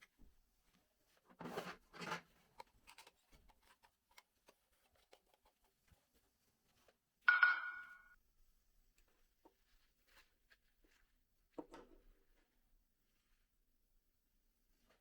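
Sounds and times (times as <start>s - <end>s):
sharp ringing clink: 7.3s - 8.1s.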